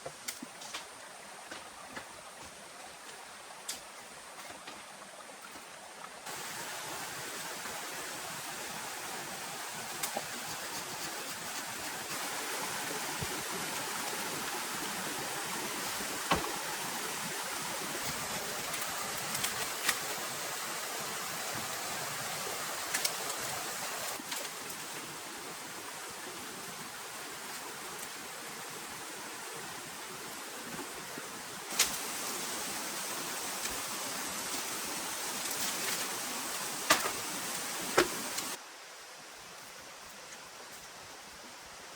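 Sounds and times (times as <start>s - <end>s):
heavy rain hissing: 6.2s - 38.6s.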